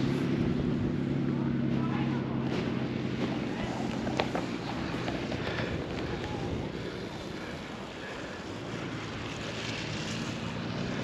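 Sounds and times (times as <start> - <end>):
wind over microphone: 3.5 - 8.0.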